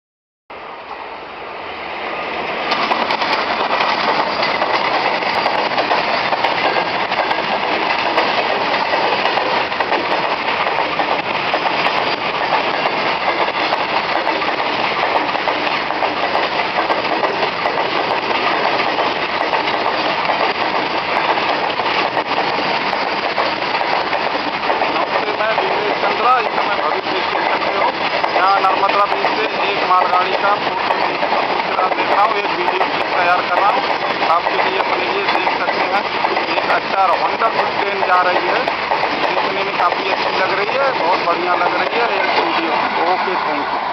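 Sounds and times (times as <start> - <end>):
train wheels rumbling on rails: 0.6 - 43.9.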